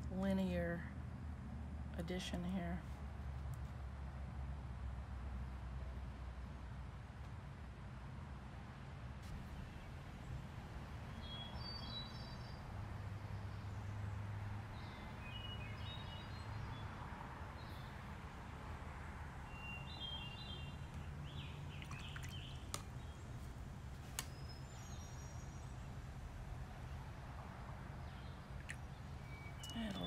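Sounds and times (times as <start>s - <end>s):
small birds chirping and singing: 11.1s - 12.7s, 14.7s - 16.9s, 19.5s - 23.5s, 24.2s - 25.9s, 28.0s - 30.0s.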